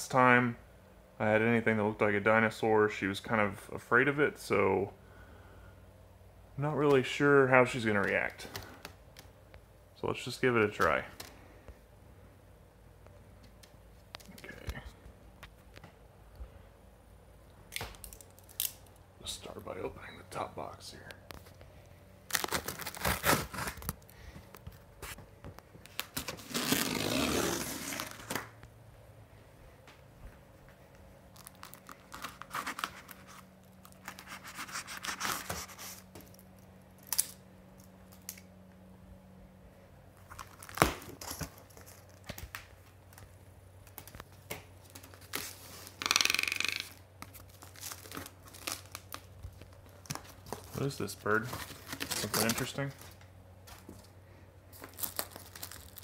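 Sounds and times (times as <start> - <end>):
packaging crinkling: 22.2 - 24.8, 31.3 - 37.3, 40.2 - 53.2, 54.7 - 56.0
tape or cardboard tearing: 22.3 - 24.0, 25.9 - 28.6, 31.3 - 36.4, 45.0 - 49.3, 50.5 - 52.8, 54.8 - 56.0.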